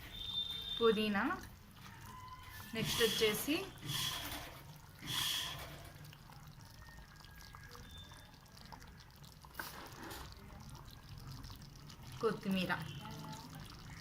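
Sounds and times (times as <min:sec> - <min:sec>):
curry bubbling in a pot: 0:00.0 - 0:14.0.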